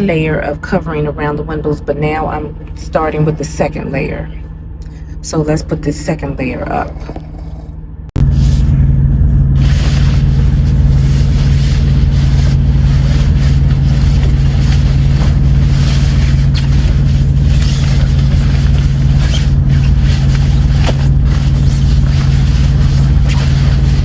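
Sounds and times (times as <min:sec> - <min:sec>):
diesel engine idling drone: 0:08.2 - 0:24.0
window covering rustling: 0:09.6 - 0:24.0.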